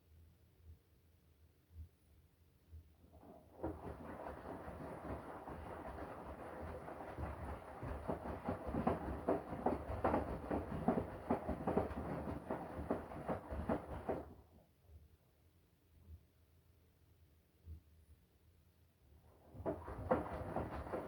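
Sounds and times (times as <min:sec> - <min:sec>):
washing machine drum tumbling: 0:19.5 - 0:21.0.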